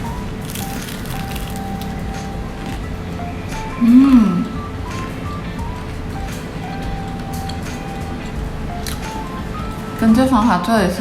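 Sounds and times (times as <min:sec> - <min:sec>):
background music: 0:00.0 - 0:11.0
crunchy chicken being chewed: 0:00.4 - 0:02.9.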